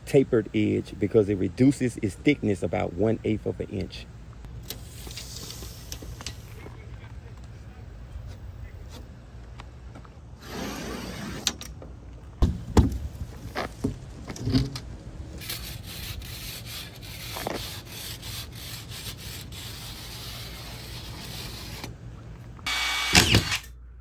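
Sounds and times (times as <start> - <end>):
hard knocks: 12.4 - 14.0
drywall rubbing and scraping: 15.4 - 21.9.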